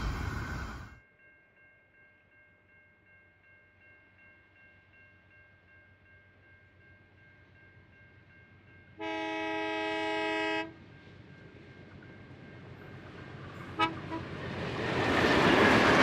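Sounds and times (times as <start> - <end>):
passing train rumble: 0.0 - 1.0, 7.5 - 16.0.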